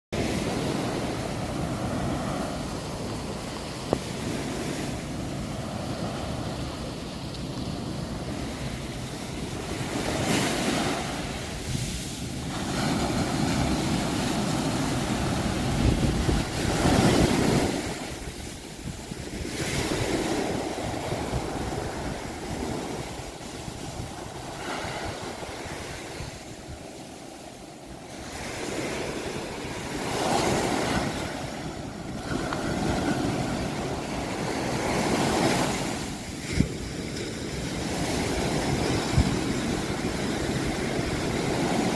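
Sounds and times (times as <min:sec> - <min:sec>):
ocean waves breaking: 0:00.2 - 0:41.9.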